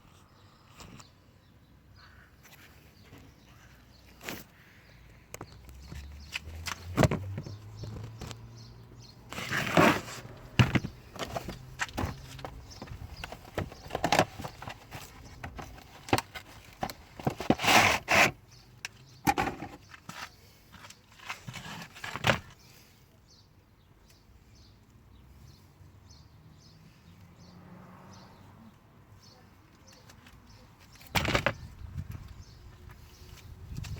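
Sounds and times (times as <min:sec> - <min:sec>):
plastic parts clicking and knocking: 0:10.5 - 0:20.1.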